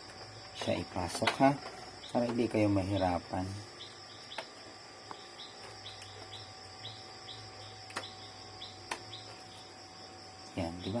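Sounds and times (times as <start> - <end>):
high insect drone: 0.0 - 11.0
insect chirp: 0.0 - 11.0
sharp light clicks: 7.8 - 8.2, 8.8 - 9.4.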